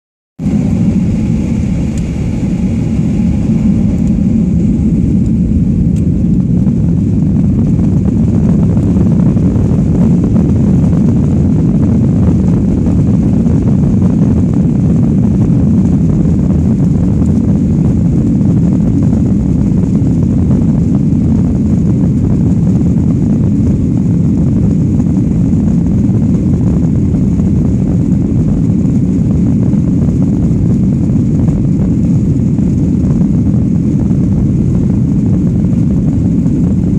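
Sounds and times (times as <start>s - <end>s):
higher engine tones: 0.4s - 7.7s
aeroplane engines at takeoff: 0.4s - 36.9s.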